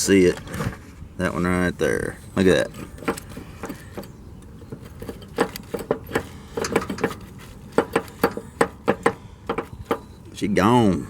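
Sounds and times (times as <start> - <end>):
pulley bearing clicking and rattling: 2.6 - 10.2.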